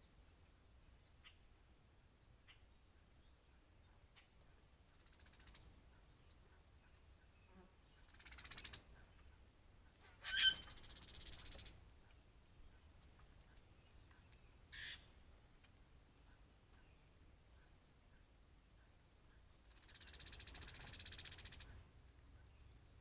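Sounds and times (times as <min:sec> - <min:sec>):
buzzy rattling bird calls: 0:04.9 - 0:05.6, 0:09.9 - 0:11.7, 0:19.6 - 0:21.7
short harsh bird call: 0:10.2 - 0:10.7.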